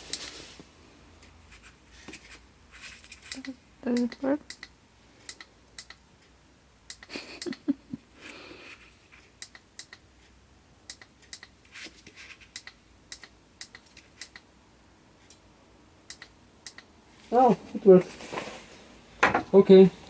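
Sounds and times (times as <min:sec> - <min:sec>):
handling rustle: 0:17.2 - 0:18.9.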